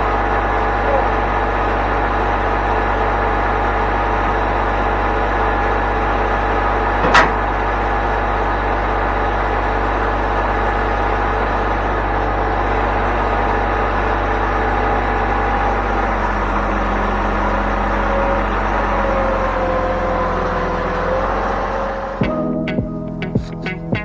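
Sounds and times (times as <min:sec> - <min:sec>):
plucked-string music: 0:22.1 - 0:24.0.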